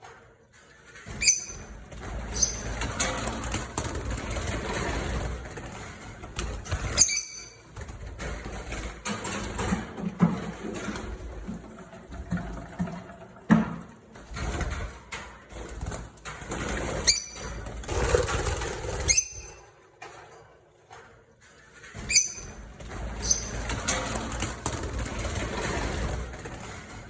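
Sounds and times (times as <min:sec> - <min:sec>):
birds chirping: 0:01.2 - 0:02.8, 0:22.1 - 0:22.6, 0:23.2 - 0:23.8.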